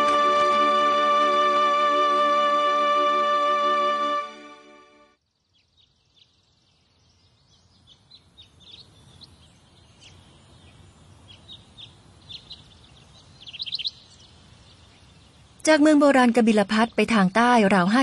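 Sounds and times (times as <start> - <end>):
birds chirping: 5.3 - 15.8.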